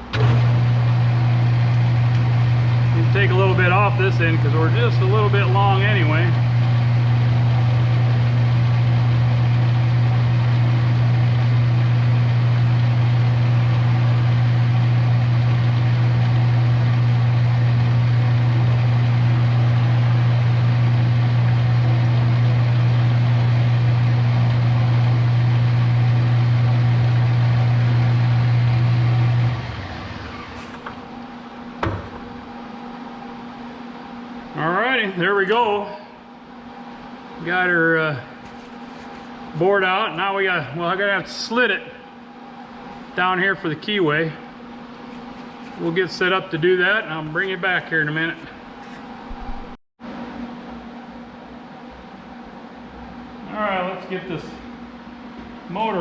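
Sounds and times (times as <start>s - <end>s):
metal lathe motor hum: 0.0s - 34.6s
single knock: 31.8s - 32.4s.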